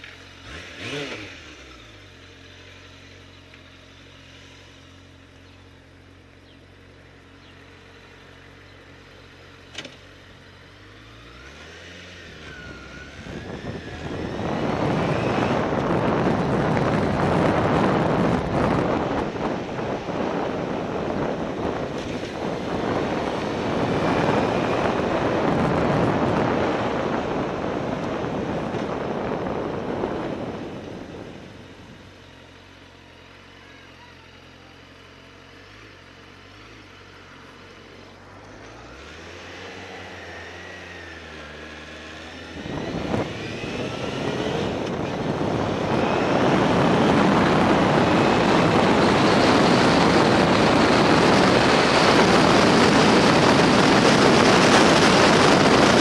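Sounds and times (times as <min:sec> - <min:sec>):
motorcycle engine: 0:00.0 - 0:56.0
wind rush on microphone: 0:12.4 - 0:32.2, 0:38.6 - 0:56.0.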